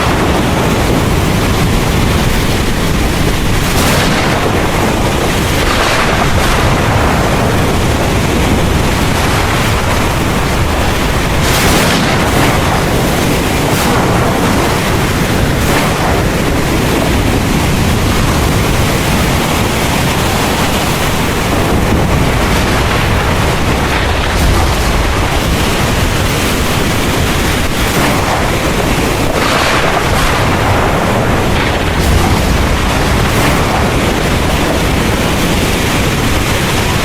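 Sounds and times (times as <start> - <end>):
heavy rain pouring: 0.0 - 37.0
low thunder rumble: 0.0 - 37.0
wind: 0.0 - 37.0.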